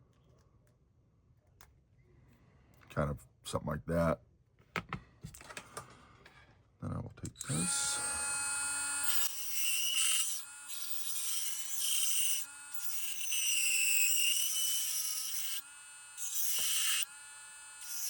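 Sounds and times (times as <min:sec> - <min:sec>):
rotary tool grinding plastic: 0:07.4 - 0:18.0.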